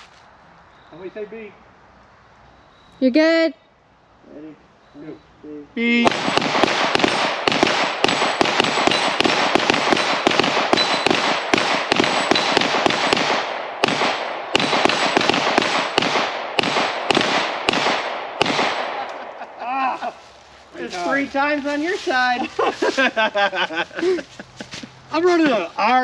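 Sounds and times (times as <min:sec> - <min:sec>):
rapid pistol fire: 0:06.0 - 0:19.1.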